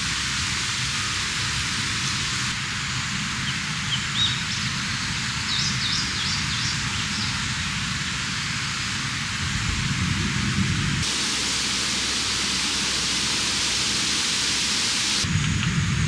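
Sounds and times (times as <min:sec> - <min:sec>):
mountain stream rushing: 0:00.0 - 0:02.6, 0:11.0 - 0:15.3.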